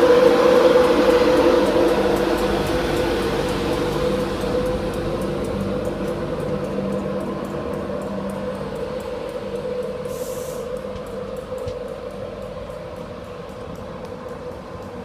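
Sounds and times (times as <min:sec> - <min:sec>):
electric train humming: 0:00.0 - 0:15.0
light rapid ticking: 0:00.0 - 0:15.0
short hiss: 0:10.1 - 0:10.7.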